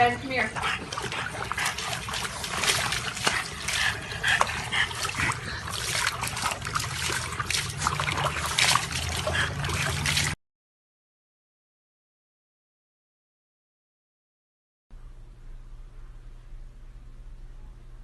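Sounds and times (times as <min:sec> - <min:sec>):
water splashing and trickling: 0:00.0 - 0:10.4.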